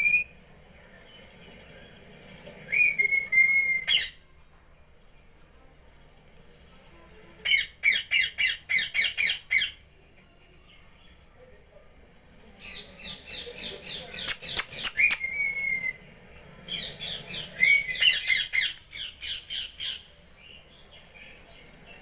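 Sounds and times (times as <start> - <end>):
parrot squawking: 14.3 - 15.3
short whistle: 14.3 - 15.4.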